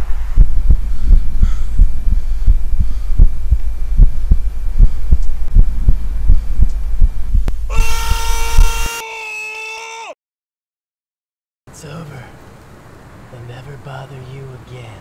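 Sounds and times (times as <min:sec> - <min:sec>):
rapid low thuds: 0:00.0 - 0:07.7
loud horn-like tone: 0:07.7 - 0:09.0.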